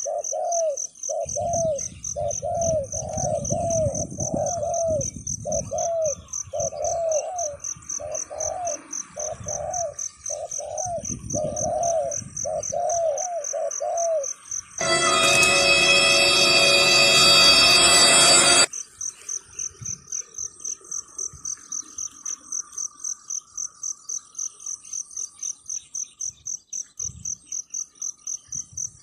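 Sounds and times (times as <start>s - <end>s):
dove cooing: 0.0s - 14.3s
high pulsing chirp: 14.8s - 18.7s.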